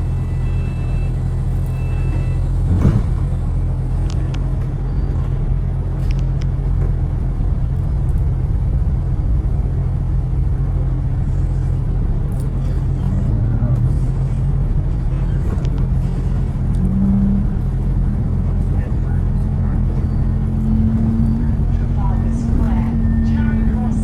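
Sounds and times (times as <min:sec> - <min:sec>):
street traffic rumble: 0:00.0 - 0:24.0
brief loud thump: 0:02.7 - 0:03.2.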